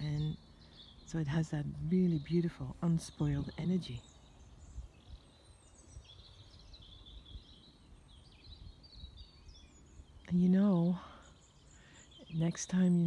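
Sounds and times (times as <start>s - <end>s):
small birds twittering: 0.0s - 13.0s.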